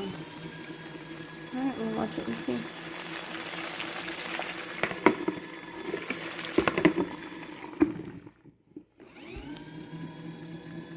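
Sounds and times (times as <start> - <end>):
sharp water splashes: 0.0 - 8.4
water churning and sloshing: 0.0 - 8.8
washing machine motor hum: 0.0 - 10.9.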